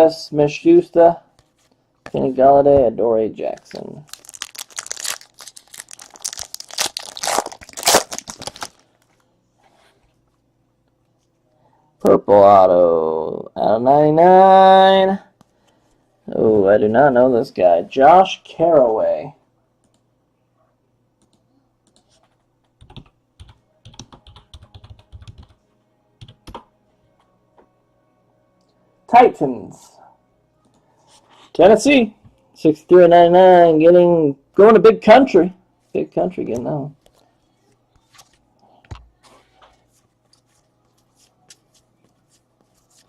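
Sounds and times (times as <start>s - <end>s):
foil wrapper crinkling and tearing: 3.6s - 9.0s
computer keyboard typing: 22.8s - 25.6s, 26.2s - 26.7s.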